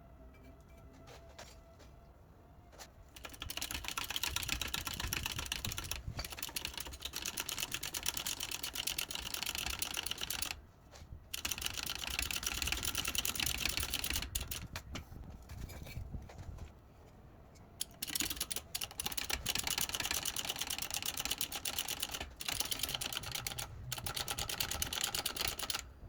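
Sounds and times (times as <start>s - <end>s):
power tool mechanical clattering: 3.2s - 10.6s, 17.8s - 25.8s.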